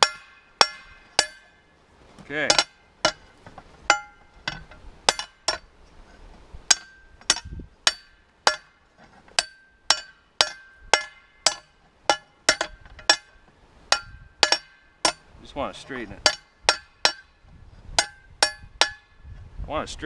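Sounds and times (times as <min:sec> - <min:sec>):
hammer striking hot steel: 0:00.0 - 0:01.6, 0:02.4 - 0:05.7, 0:06.7 - 0:08.8, 0:09.4 - 0:15.3, 0:16.2 - 0:17.4, 0:18.0 - 0:19.2.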